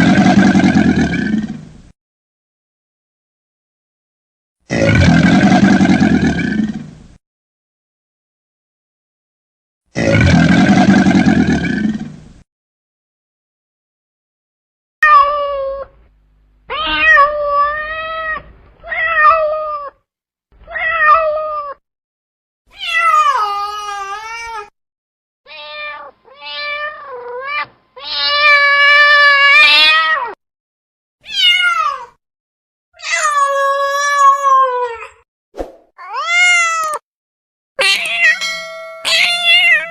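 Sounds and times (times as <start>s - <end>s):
cat meowing: 16.7s - 20.0s, 20.6s - 21.8s, 22.7s - 24.7s, 25.5s - 30.4s, 31.2s - 32.1s, 36.0s - 37.0s, 37.8s - 39.9s.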